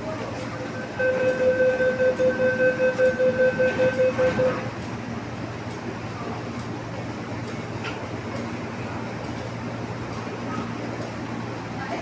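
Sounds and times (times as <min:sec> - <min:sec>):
low hum of train: 0:00.0 - 0:12.0
train door warning beeps: 0:00.6 - 0:04.9.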